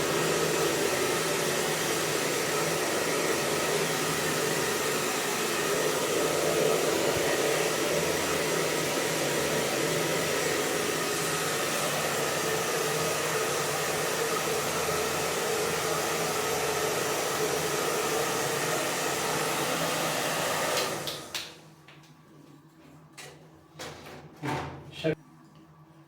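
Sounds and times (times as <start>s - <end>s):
hair dryer blowing: 0.0s - 21.6s.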